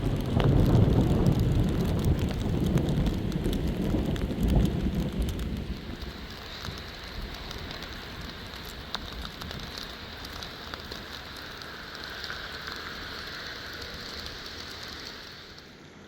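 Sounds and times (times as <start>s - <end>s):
sharp ticks and drips: 0.0s - 16.0s
water hissing: 9.9s - 15.8s.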